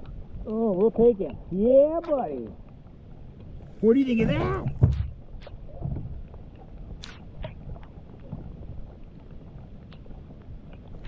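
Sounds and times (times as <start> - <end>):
wind rumble on microphone: 0.0 - 11.0
faint clicks and knocks: 4.6 - 11.0.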